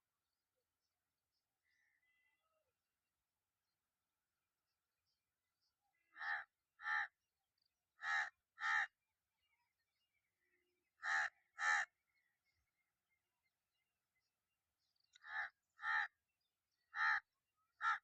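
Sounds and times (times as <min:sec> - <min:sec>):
crow cawing: 0:06.1 - 0:07.1, 0:08.0 - 0:08.9, 0:11.0 - 0:11.9, 0:15.2 - 0:16.1, 0:16.9 - 0:18.0.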